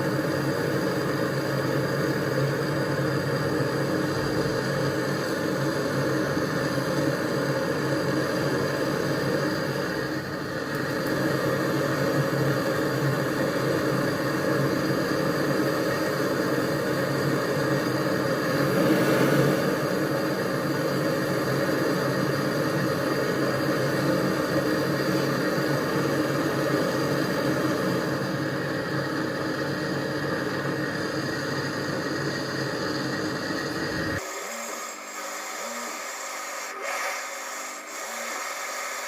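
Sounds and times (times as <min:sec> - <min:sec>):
motor running: 0:24.1 - 0:39.0.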